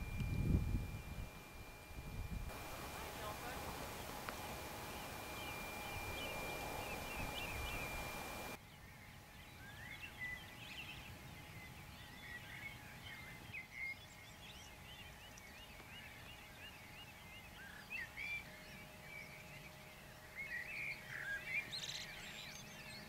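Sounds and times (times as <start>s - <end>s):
thin high whistle: 0.0s - 8.6s
small birds singing: 0.0s - 23.0s
steady background hiss: 0.0s - 23.0s.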